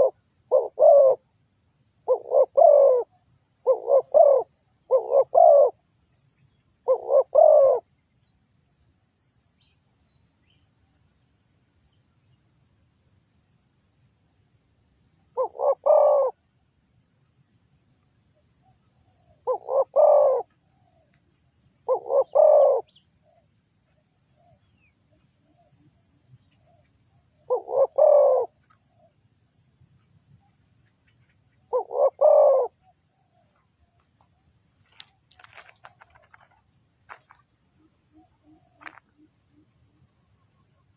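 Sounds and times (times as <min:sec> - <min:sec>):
dove cooing: 0:00.0 - 0:01.2, 0:02.0 - 0:05.8, 0:06.8 - 0:07.9, 0:15.3 - 0:16.4, 0:19.1 - 0:21.0, 0:21.8 - 0:23.4, 0:27.4 - 0:28.6, 0:31.7 - 0:33.4.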